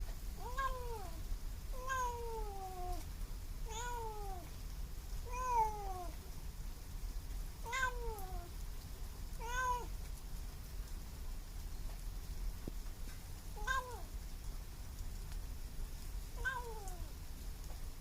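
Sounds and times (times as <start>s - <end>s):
kitten meowing: 0.4s - 1.2s, 1.8s - 3.0s, 3.7s - 4.5s, 5.3s - 6.1s, 7.7s - 8.5s, 9.4s - 9.9s, 13.6s - 14.1s, 16.4s - 17.1s.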